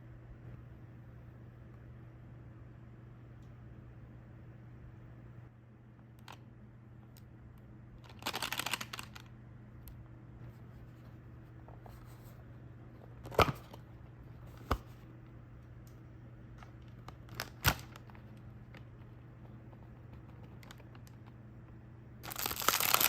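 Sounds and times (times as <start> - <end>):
low steady hum: 0.0 - 23.0
packaging rustling: 8.0 - 9.3, 16.6 - 19.1, 22.2 - 23.0.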